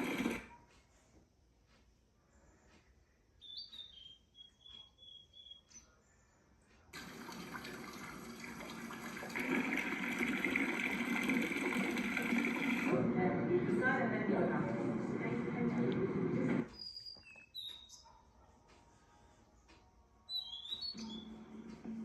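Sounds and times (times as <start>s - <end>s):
faint high chirps: 2.3s - 6.8s, 16.7s - 18.5s, 20.2s - 21.5s.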